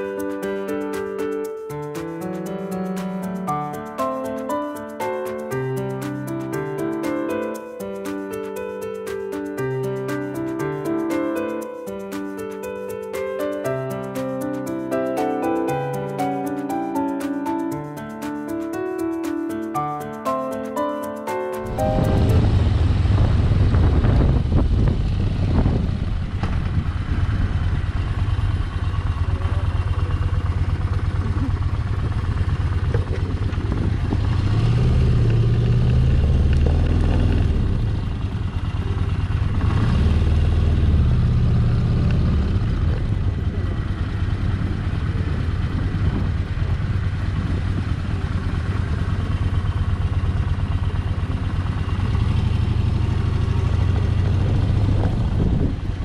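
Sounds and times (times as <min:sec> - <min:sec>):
motorcycle engine running: 0:21.6 - 0:56.0
road and wind noise: 0:21.6 - 0:56.0.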